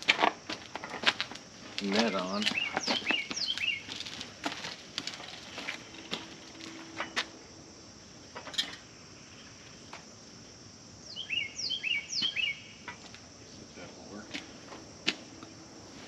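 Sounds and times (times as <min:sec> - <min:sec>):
bird chirping: 0:02.1 - 0:04.0, 0:11.1 - 0:12.9.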